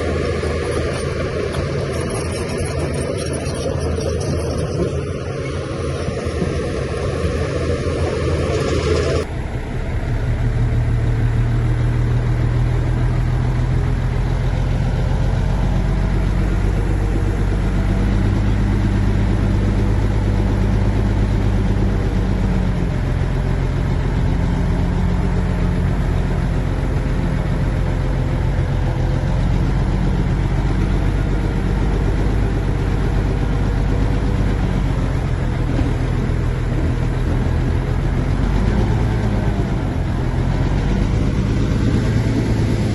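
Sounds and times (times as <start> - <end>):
heavy diesel engine under load: 0.0 - 42.9
noisy rushing sound: 4.8 - 11.3.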